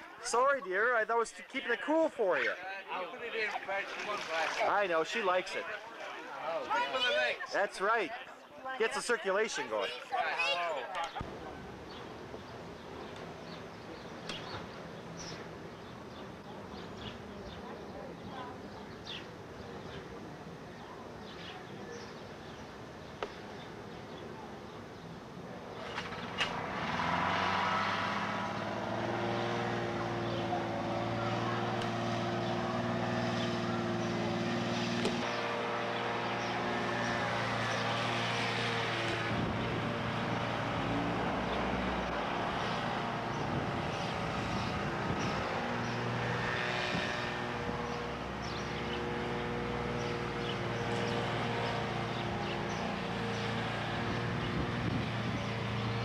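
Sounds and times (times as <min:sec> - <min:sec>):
engine drone: 0:25.9 - 0:56.0.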